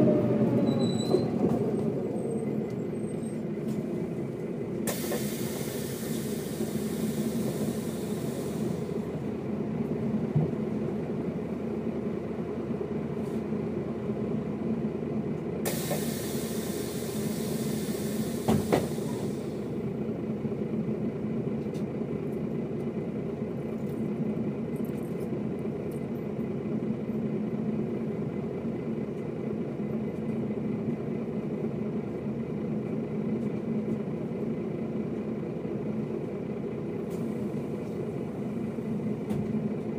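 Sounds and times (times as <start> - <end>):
bus diesel engine droning: 0.0 - 39.9
air hiss: 15.7 - 19.6.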